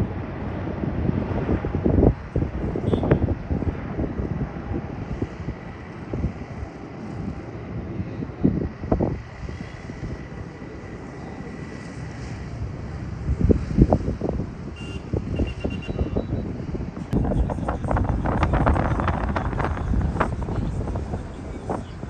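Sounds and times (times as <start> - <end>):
airliner engines running: 0.0 - 22.0
wind buffeting microphone: 0.0 - 22.0.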